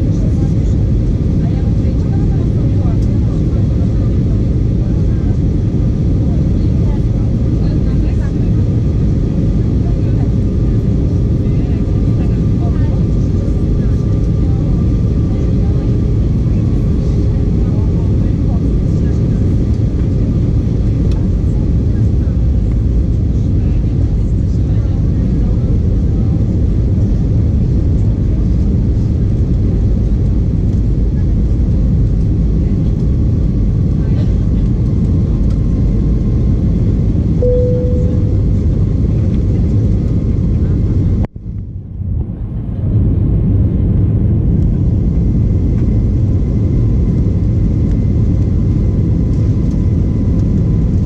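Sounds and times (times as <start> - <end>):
airliner engines rumbling: 0.0 - 51.0
faint steady tones: 37.4 - 38.8.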